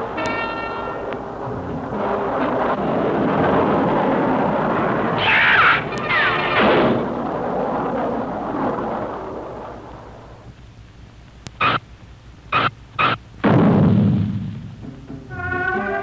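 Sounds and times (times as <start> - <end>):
explosion blasts: 0.0 - 10.6, 12.5 - 16.0
rushing rumble: 0.0 - 16.0
falling whistle: 12.6 - 13.2, 15.3 - 16.0.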